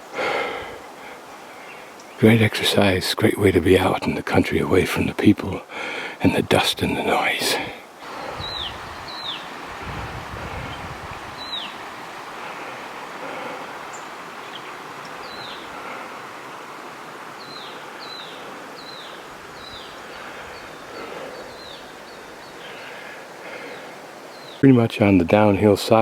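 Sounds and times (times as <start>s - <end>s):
outdoor hiss: 0.0s - 26.0s
bird calling: 8.0s - 24.6s.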